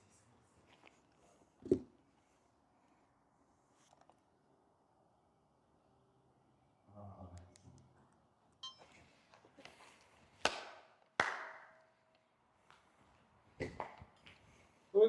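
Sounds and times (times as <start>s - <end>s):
short ringing tone: 8.6s - 9.0s.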